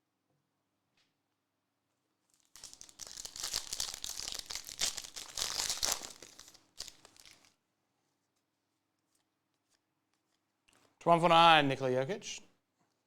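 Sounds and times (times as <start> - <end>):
wrapper being torn and crinkled: 2.3 - 7.6.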